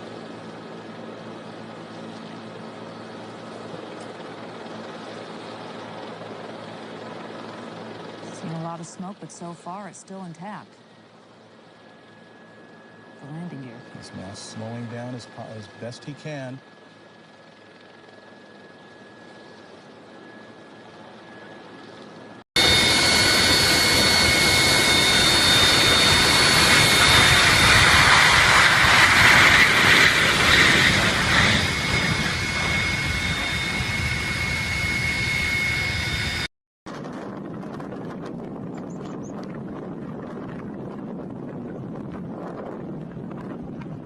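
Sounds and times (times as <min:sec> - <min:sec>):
jet engines running loud: 0:00.0 - 0:44.0
quiet steady rush: 0:07.1 - 0:17.2.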